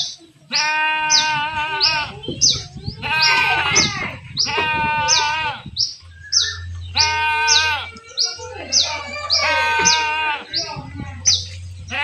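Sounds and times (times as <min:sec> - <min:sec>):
bird chirping: 0:00.0 - 0:12.0
goats bleating: 0:00.4 - 0:02.3, 0:03.0 - 0:05.7, 0:07.0 - 0:08.0, 0:08.8 - 0:10.9.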